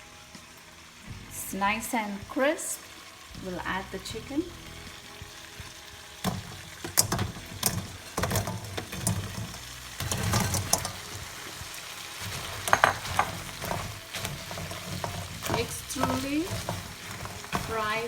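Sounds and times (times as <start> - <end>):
chicken sizzling in a pan: 0.0 - 18.0
spoon scraping and knocking pan: 5.6 - 18.0.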